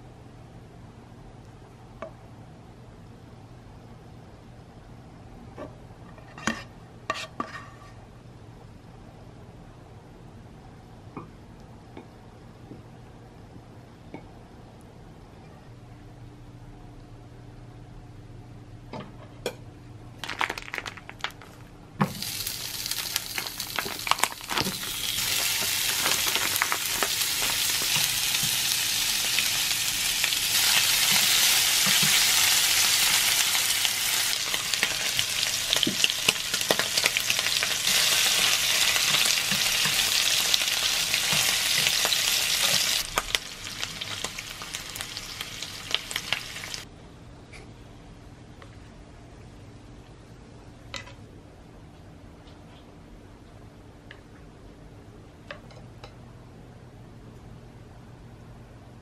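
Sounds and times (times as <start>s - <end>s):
meat sizzling in a pan: 22.1s - 46.8s.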